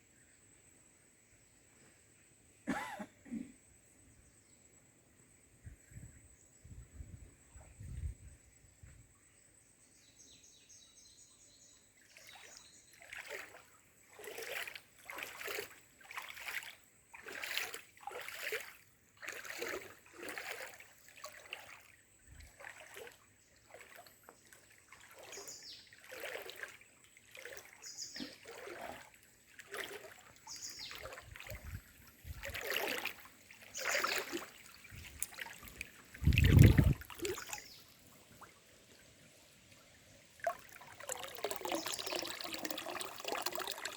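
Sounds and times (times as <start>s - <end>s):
water splashing: 12.1s - 43.9s
deep splash or thump: 30.9s - 33.2s, 36.2s - 37.6s.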